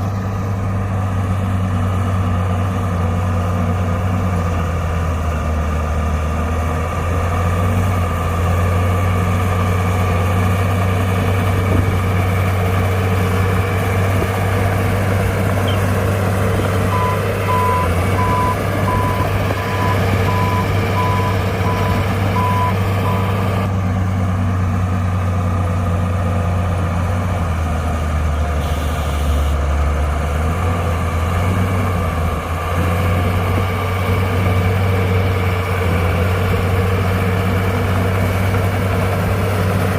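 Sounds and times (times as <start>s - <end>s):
heavy diesel machinery droning: 0.0s - 39.9s
reversing alarm beeping: 16.9s - 23.4s.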